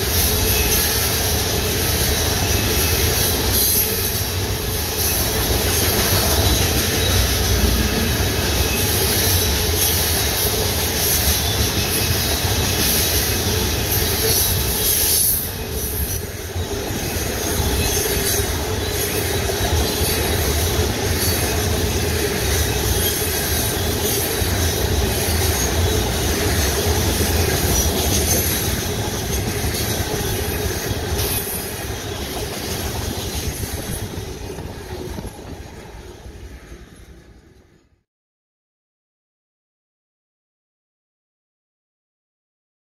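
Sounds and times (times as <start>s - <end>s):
freight train wheels on rail: 0.0s - 38.0s.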